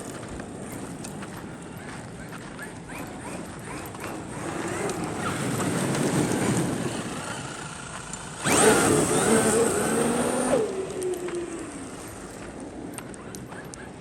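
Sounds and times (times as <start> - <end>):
tires spinning on gravel: 0.0 - 14.0
electric motor whining: 2.8 - 12.4.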